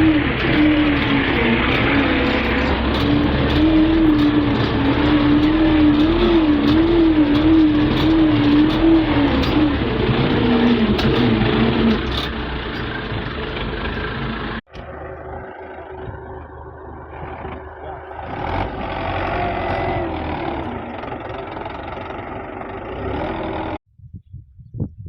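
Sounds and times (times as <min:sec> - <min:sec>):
tractor diesel engine running: 0:00.0 - 0:23.8.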